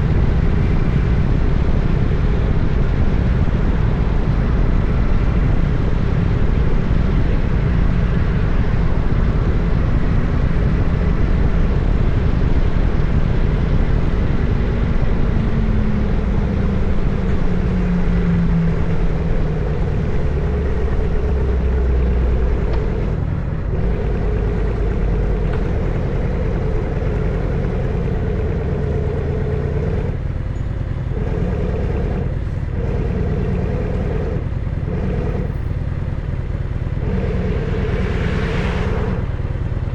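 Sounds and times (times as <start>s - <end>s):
motorcycle engine rumbling: 0.0s - 39.9s.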